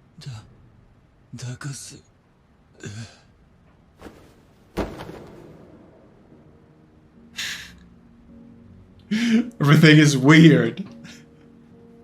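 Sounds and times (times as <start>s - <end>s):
heavy thud: 4.0s - 5.8s.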